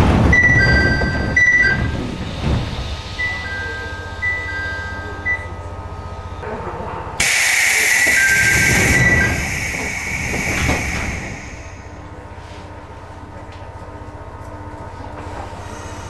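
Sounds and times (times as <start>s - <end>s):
compressed air hissing: 7.2s - 12.1s.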